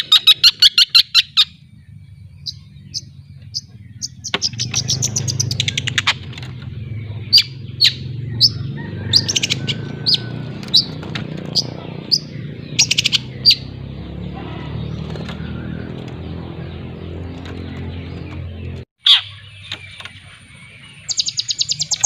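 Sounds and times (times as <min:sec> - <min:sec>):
bird trilling and chipping: 0:00.0 - 0:22.0.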